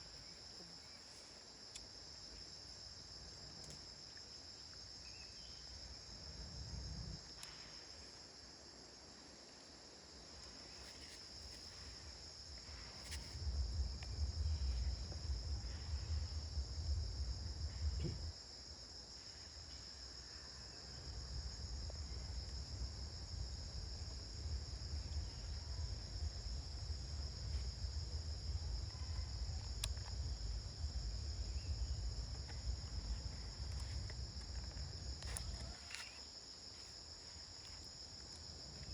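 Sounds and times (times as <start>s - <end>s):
crickets chirring: 0.0s - 38.9s
low rumbling noise: 12.7s - 18.3s, 22.8s - 35.5s.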